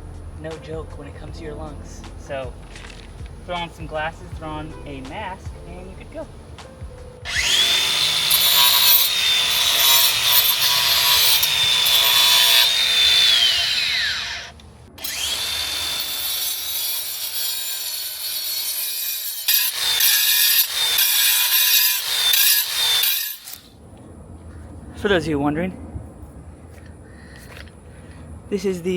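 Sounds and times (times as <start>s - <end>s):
grinder blade grinding concrete: 7.3s - 23.6s
angle grinder motor whine: 7.3s - 23.7s.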